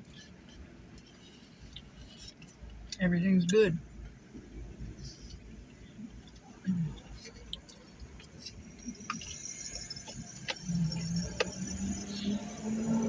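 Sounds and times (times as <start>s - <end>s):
low traffic rumble: 0.0s - 13.0s
truck engine drone: 4.7s - 13.0s.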